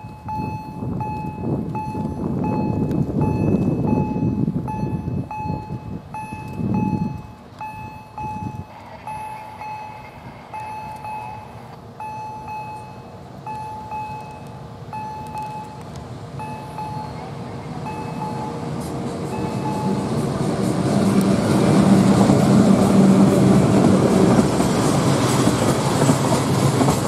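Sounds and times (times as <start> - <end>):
electronic warning beeps: 0.0 - 15.8, 16.4 - 18.7, 19.3 - 20.1
freight train rumble: 0.0 - 27.0.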